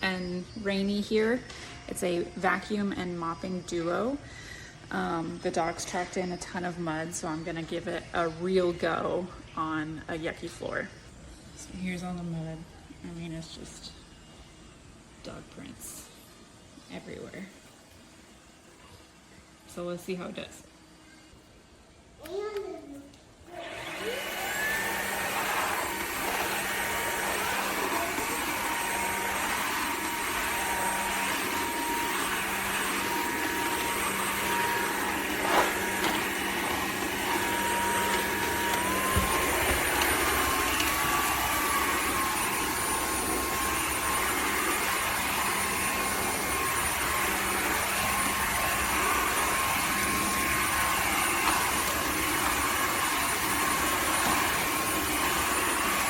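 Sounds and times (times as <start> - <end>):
vacuum mop motor whine: 23.5 - 56.0.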